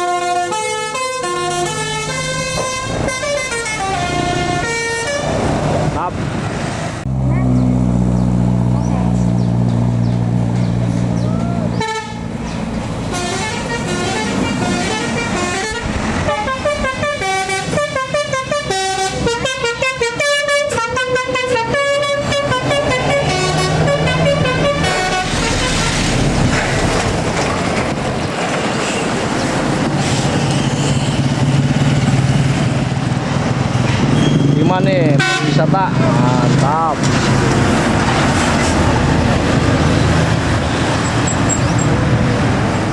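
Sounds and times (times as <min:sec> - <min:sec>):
bus horn playing melody: 0:00.0 - 0:05.4, 0:11.6 - 0:26.3, 0:35.1 - 0:35.7
bus engine running: 0:00.0 - 0:42.9
road noise: 0:00.0 - 0:42.9.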